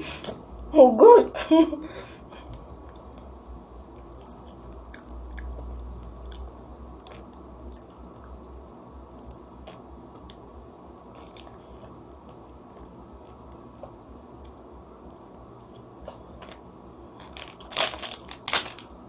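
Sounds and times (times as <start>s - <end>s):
person chewing ice cream bar: 4.0s - 8.4s, 11.0s - 14.6s
small crunches: 15.7s - 19.0s.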